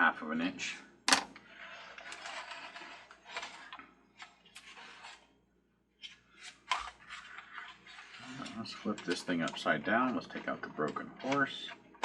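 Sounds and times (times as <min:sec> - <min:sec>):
plastic parts rustling and clattering: 0:01.1 - 0:05.2.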